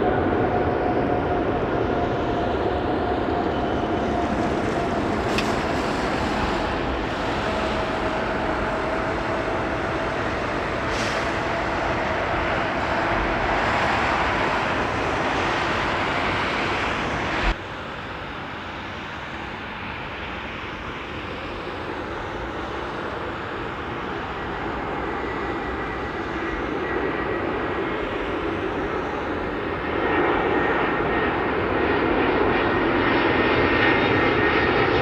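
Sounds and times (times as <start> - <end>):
approaching jet with high whine: 0.0 - 35.0
jet engine rush: 0.0 - 35.0.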